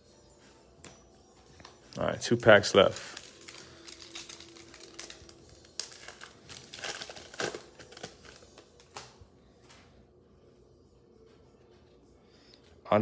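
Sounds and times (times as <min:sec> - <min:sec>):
plastic wrapper crinkling and tearing: 0:01.6 - 0:09.2.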